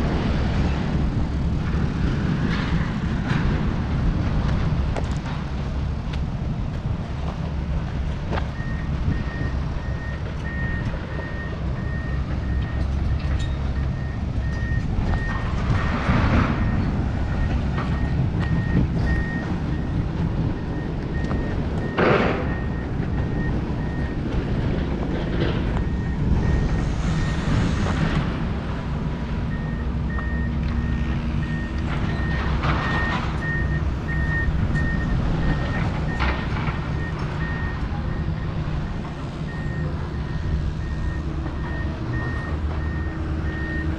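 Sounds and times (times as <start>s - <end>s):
low engine rumble: 0.0s - 43.9s
vehicle backup alarm beeping: 8.4s - 24.4s, 25.8s - 28.0s, 29.4s - 43.9s.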